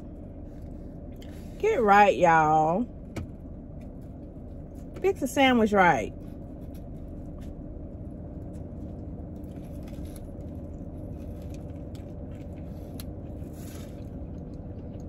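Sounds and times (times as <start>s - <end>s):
person chewing a sandwich: 0.0s - 1.5s, 6.2s - 15.0s
steady low hum: 0.0s - 15.0s.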